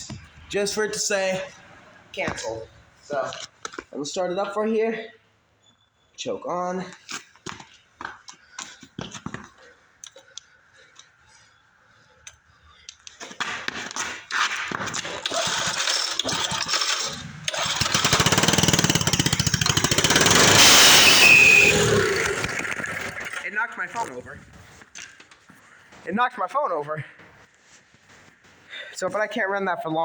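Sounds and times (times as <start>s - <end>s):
go-kart engine sputtering and running: 15.2s - 23.4s.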